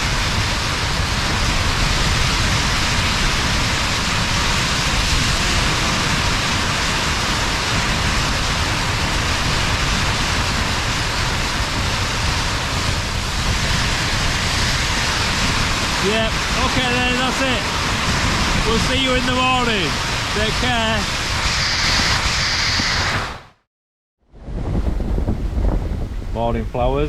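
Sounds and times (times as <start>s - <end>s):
wind and snow battering tent: 0.0s - 27.0s.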